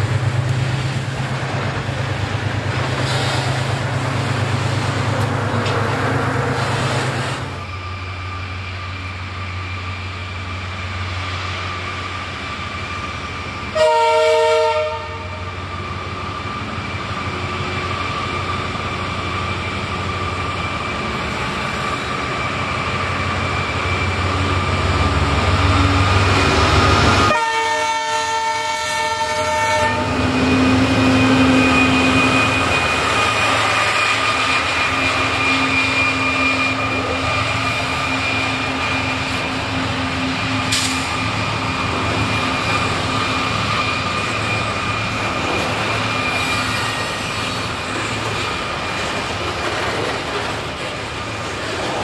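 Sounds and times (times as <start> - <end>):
diesel locomotive engines under load: 0.0 - 52.0
train horn blast: 13.7 - 15.5, 27.2 - 32.6.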